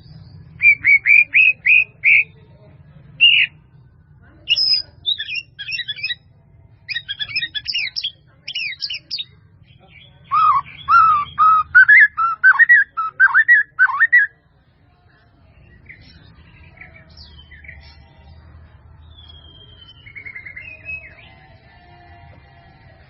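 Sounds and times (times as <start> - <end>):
faint bird chirps and trills: 0.0 - 3.8, 4.4 - 14.4
bird singing whistled phrases: 0.5 - 2.4, 3.2 - 3.6, 4.5 - 6.2, 6.9 - 9.3, 10.3 - 14.3, 19.1 - 21.2.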